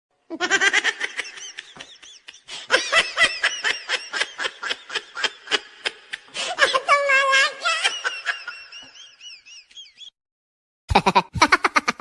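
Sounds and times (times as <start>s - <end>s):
high-pitched laughter: 10.9s - 12.0s.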